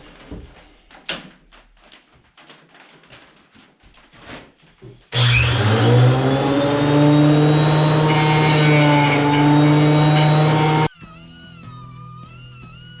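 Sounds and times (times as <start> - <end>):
power tool motor running: 5.2 - 10.9.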